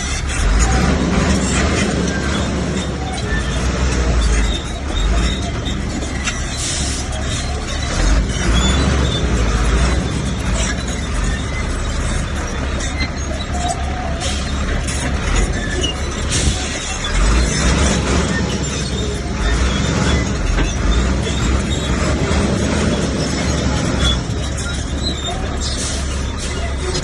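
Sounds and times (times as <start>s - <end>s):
heavy diesel machinery rumbling: 0.0s - 27.0s
metal knocks and clanks: 0.0s - 27.0s.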